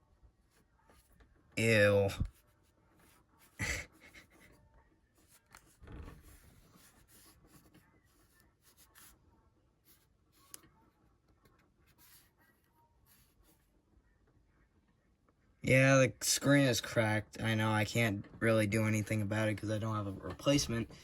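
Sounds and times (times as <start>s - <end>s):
faint scratching and rubbing: 0.3s - 13.9s.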